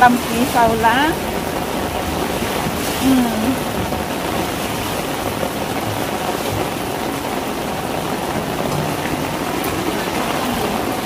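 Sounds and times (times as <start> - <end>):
heavy rain on a tiled roof: 0.0 - 11.0
rainwater running across floor: 0.0 - 11.0.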